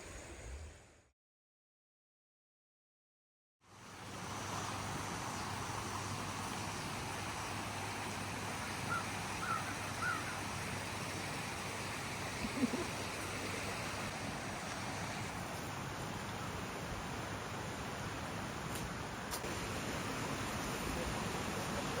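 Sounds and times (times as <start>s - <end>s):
outdoor background hiss: 3.6s - 22.0s
bird calling: 8.9s - 10.4s.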